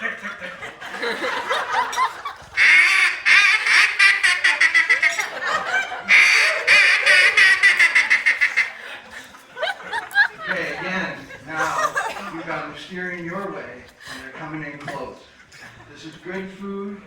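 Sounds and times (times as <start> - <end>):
duck call quacks: 2.6 - 5.5, 6.1 - 8.8.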